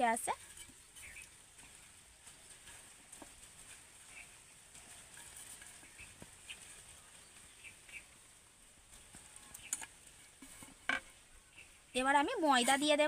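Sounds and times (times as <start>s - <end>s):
background hiss: 0.0s - 13.0s
faint bird chirps: 1.0s - 1.3s.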